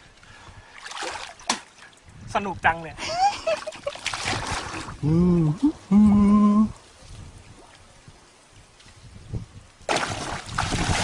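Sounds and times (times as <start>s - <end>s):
water splashing and sloshing: 0.0s - 2.3s, 3.3s - 5.0s, 6.7s - 11.0s
person humming: 5.0s - 6.8s
person vocal sound: 5.0s - 6.8s.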